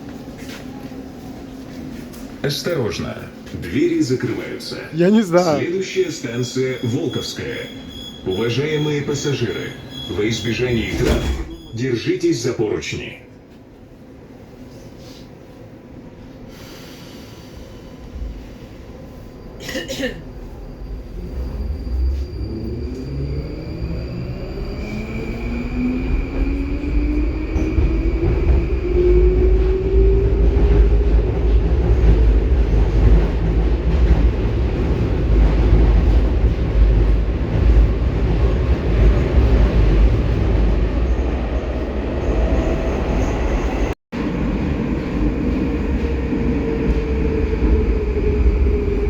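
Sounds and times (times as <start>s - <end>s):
train wheels rumbling: 16.3s - 49.0s.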